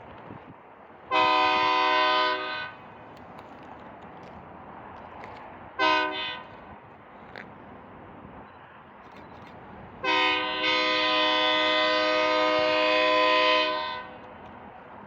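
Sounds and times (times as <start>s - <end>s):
locomotive air horn blast: 1.1s - 2.8s, 5.8s - 6.5s, 10.0s - 14.3s.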